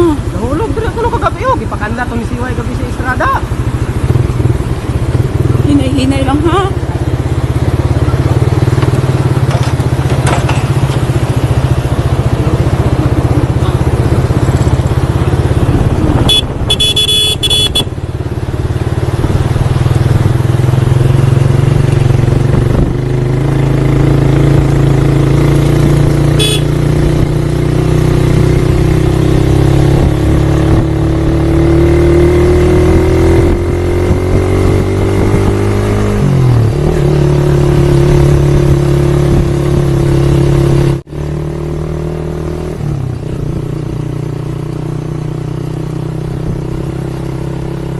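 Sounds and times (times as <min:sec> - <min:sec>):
motorcycle engine running: 0:00.0 - 0:47.9
short horn beep: 0:16.2 - 0:17.9, 0:26.4 - 0:26.8.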